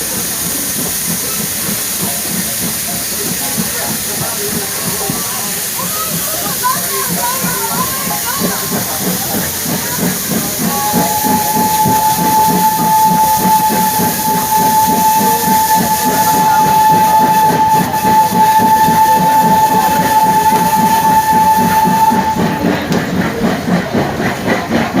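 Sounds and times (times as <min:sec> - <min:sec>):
steam locomotive chuffing: 0:00.0 - 0:25.0
steam whistle: 0:09.6 - 0:22.8.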